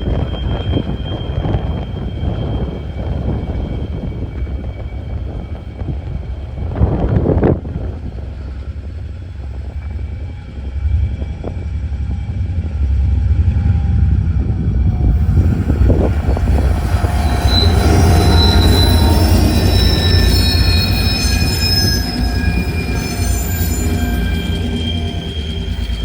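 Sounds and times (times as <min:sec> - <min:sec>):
metallic wheel squeal: 0:00.0 - 0:05.9, 0:14.9 - 0:26.0
train passing rumble: 0:00.0 - 0:26.0.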